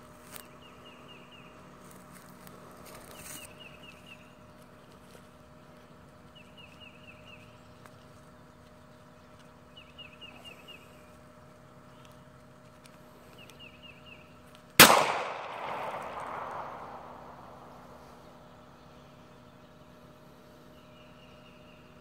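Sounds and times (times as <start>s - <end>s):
faint steady hum: 0.0s - 22.0s
small bird singing: 3.0s - 12.3s, 13.3s - 14.5s, 16.3s - 22.0s.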